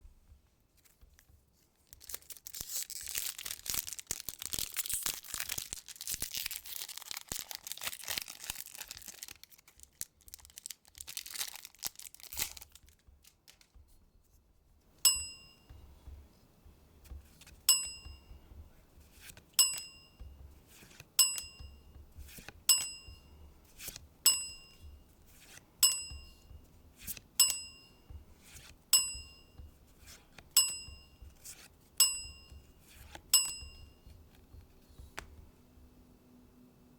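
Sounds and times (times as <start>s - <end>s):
wrapper tearing and crinkling: 1.9s - 13.7s
bright ringing ding: 15.0s - 16.1s, 17.7s - 18.5s, 19.6s - 20.4s, 21.2s - 22.0s, 22.7s - 23.4s, 24.3s - 25.0s, 25.8s - 26.6s, 27.4s - 28.2s, 29.0s - 29.7s, 30.6s - 31.3s, 32.0s - 32.7s, 33.3s - 34.1s.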